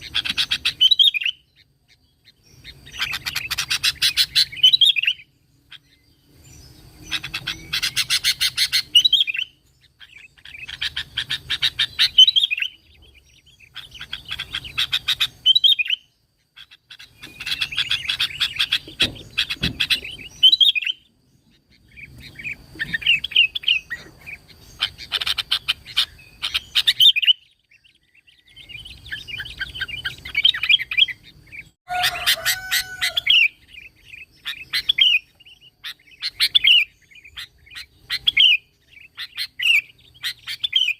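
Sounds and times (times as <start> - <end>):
bulbul singing chattering runs: 0.0 - 40.9
slurred bird whistle: 2.6 - 6.0, 7.0 - 12.8, 22.2 - 40.9.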